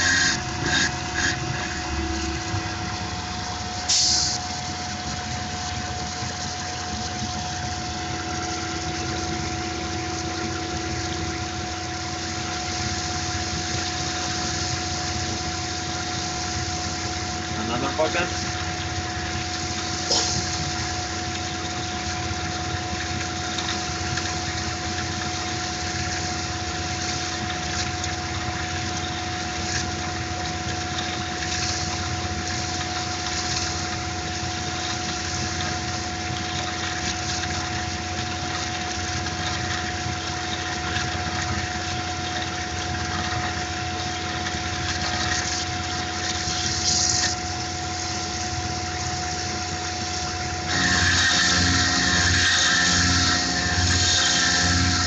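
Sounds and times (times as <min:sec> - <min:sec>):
sharp cutting noises: 0:00.0 - 0:01.4, 0:50.7 - 0:55.0
coolant hissing: 0:00.0 - 0:55.0
milling machine whine: 0:00.0 - 0:55.0.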